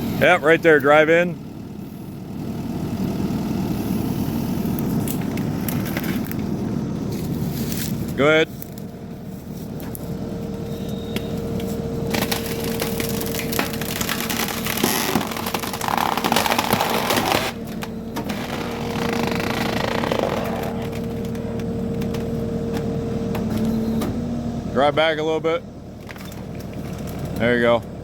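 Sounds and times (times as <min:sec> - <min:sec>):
engine running with whine: 0:00.0 - 0:28.0
wood cracking and splintering: 0:11.4 - 0:22.3.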